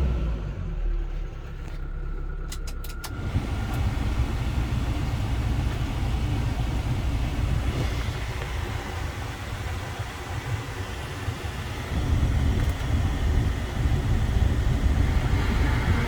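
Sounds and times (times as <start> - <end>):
truck engine rumble: 0.0 - 16.0.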